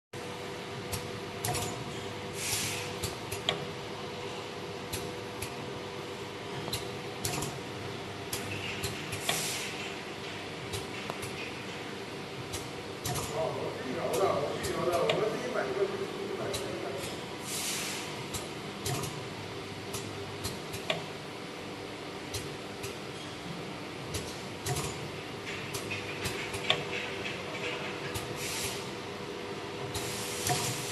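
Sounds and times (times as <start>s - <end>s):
mechanism clicks: 0.9s - 1.9s, 3.0s - 3.7s, 6.7s - 7.6s, 12.5s - 15.3s, 18.3s - 19.3s, 24.1s - 28.3s.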